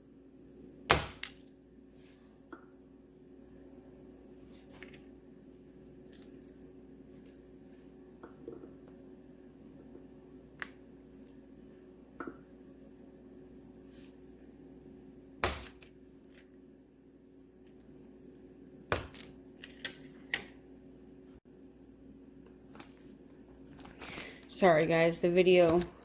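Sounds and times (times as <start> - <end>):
faint steady hum: 0.0 - 26.0
knife chopping wax: 0.9 - 1.5, 15.4 - 16.0, 18.9 - 19.9.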